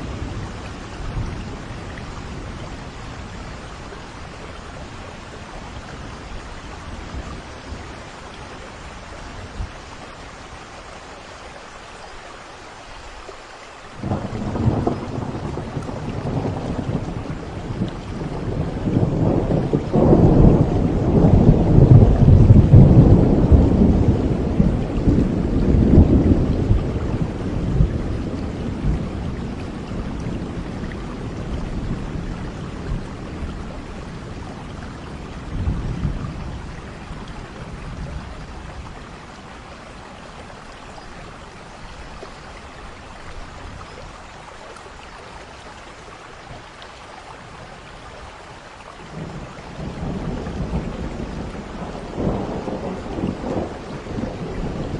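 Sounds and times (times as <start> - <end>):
steady rain: 0.0 - 54.9
thunder rumbling: 14.0 - 40.4, 49.1 - 54.9.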